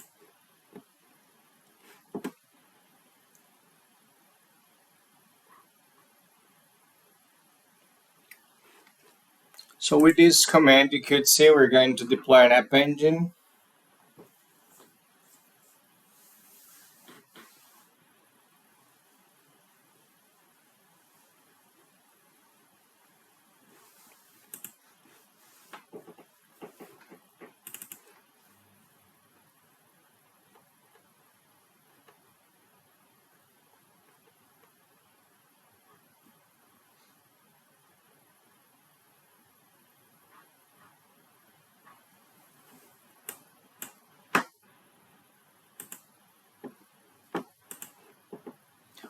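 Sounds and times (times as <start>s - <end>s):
faint room hiss: 0.0s - 49.0s
computer clicks: 24.5s - 24.8s, 27.6s - 28.1s, 43.2s - 44.6s, 45.8s - 46.1s, 47.6s - 48.0s
computer keyboard typing: 24.5s - 24.8s, 26.6s - 28.1s, 45.8s - 46.0s, 47.4s - 48.0s.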